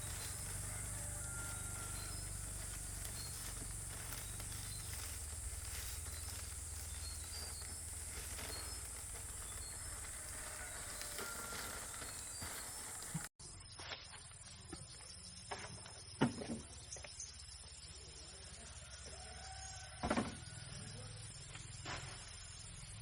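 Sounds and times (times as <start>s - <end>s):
steady high-pitched hiss: 0.0s - 13.3s.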